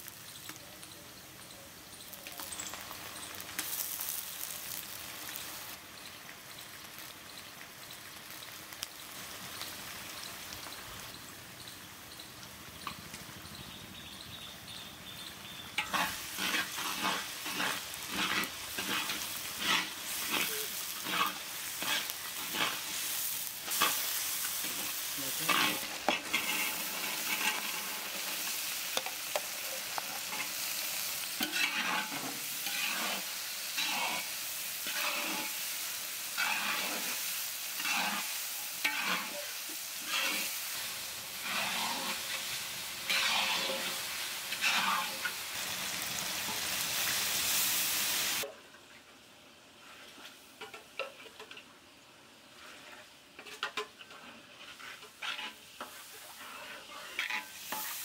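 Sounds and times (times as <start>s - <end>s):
vegetables sizzling in oil: 0.0s - 58.0s
metal spatula scraping wok: 15.8s - 35.6s, 36.2s - 45.4s, 52.6s - 58.0s.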